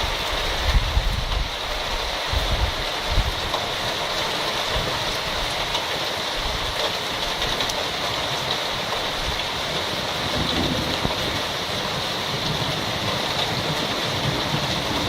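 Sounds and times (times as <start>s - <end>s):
heavy rain falling: 0.0s - 15.0s
wind puffs on microphone: 0.3s - 3.6s, 9.3s - 15.0s.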